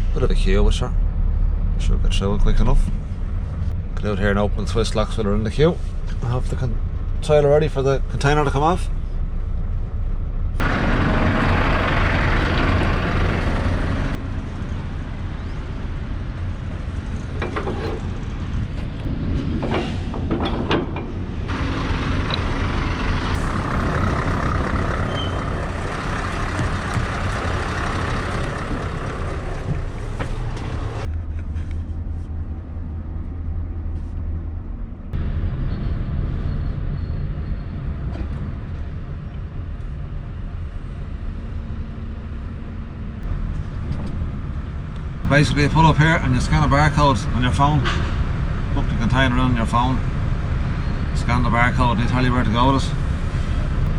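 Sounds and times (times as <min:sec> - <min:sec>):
diesel truck engine idling: 0:09.1 - 0:19.0, 0:21.1 - 0:31.1.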